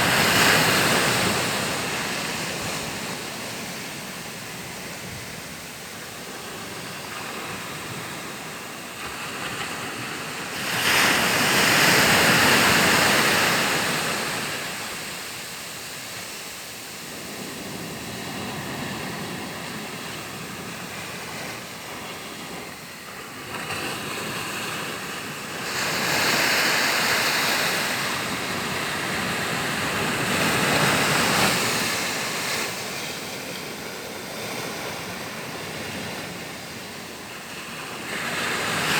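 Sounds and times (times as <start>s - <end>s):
waves washing in: 0.0s - 38.9s.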